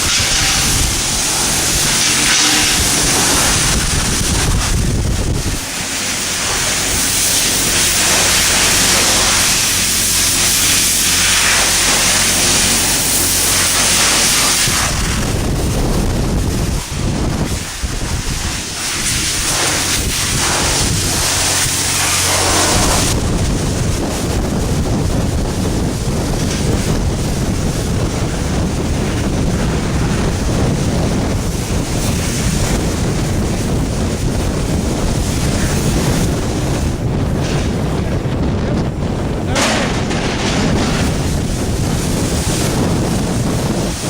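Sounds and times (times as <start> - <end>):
high-pressure water spray hissing: 0.0 - 38.2, 39.3 - 44.0.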